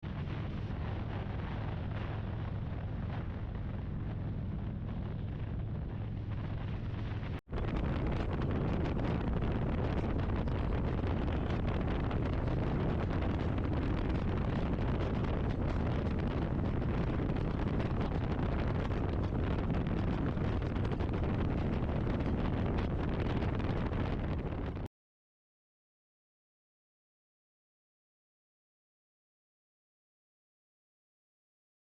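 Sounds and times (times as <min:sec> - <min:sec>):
steady low rumble: 0:00.0 - 0:24.9
wind buffeting microphone: 0:00.0 - 0:24.9.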